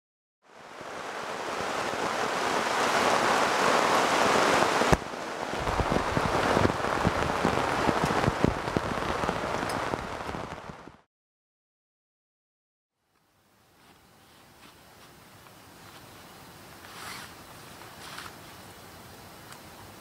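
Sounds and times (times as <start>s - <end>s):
heavy rain hissing: 0.5s - 11.1s, 14.1s - 20.0s
heavy raindrops thudding: 1.8s - 11.1s.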